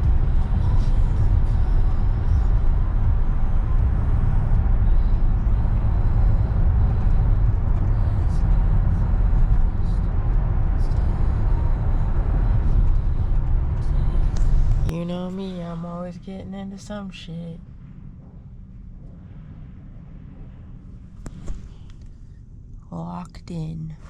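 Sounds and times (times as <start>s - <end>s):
car rumbling on the move: 0.0s - 16.0s
road and wind noise: 0.0s - 16.1s, 17.6s - 22.7s.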